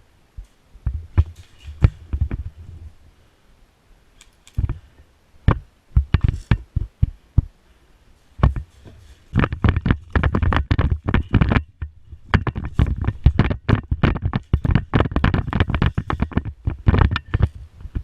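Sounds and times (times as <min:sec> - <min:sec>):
knocks and thumps: 0:00.8 - 0:02.8, 0:05.5 - 0:07.6, 0:08.4 - 0:18.0.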